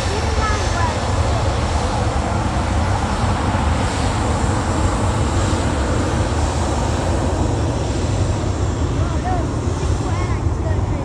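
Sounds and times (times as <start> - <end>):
jet engine roar at takeoff: 0.0 - 11.0.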